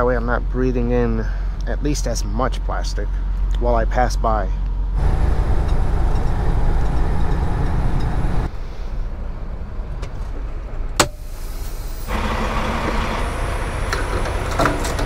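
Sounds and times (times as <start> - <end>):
truck engine and road rumble: 0.0 - 15.0.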